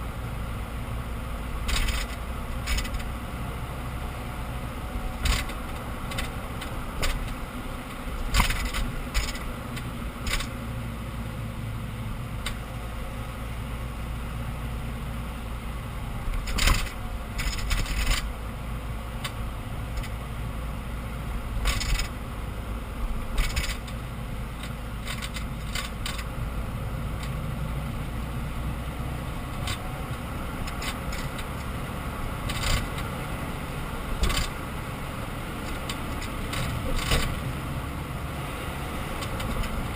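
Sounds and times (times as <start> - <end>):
clacks and knocks from rear axle: 1.7 - 3.1, 5.2 - 7.4, 8.2 - 10.6, 16.4 - 18.3, 21.6 - 22.1, 23.4 - 24.0, 24.6 - 26.3, 32.5 - 33.1, 34.2 - 34.6, 35.6 - 37.4.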